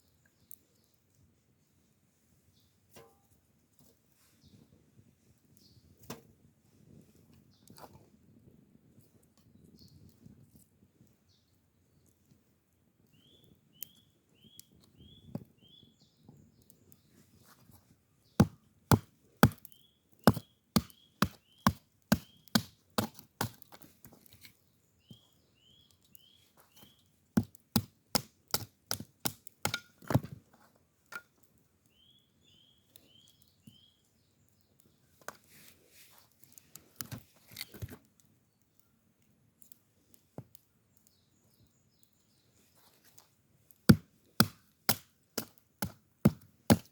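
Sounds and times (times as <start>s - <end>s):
bird chirping: 13.1s - 17.1s, 19.6s - 22.6s, 24.8s - 27.1s, 31.9s - 35.0s
axe chopping wood: 18.4s - 23.7s, 27.4s - 30.3s, 43.9s - 46.9s.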